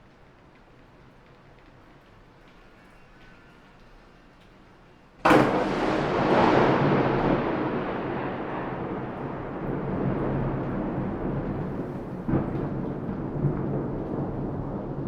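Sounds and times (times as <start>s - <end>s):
thunder crack and rumble: 5.2s - 15.0s.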